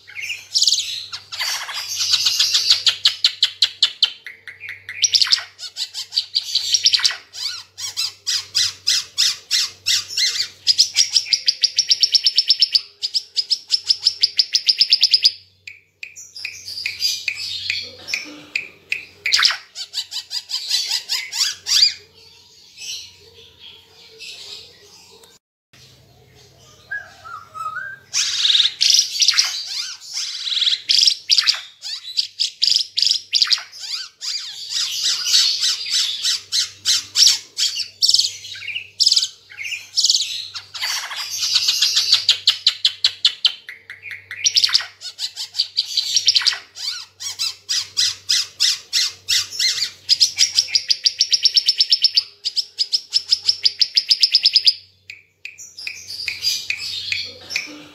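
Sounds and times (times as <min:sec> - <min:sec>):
songbird singing: 0:20.9 - 0:57.9.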